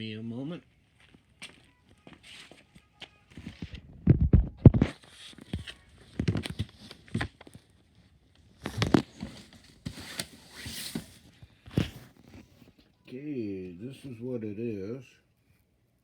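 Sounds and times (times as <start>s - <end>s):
rustling: 4.9s - 12.8s.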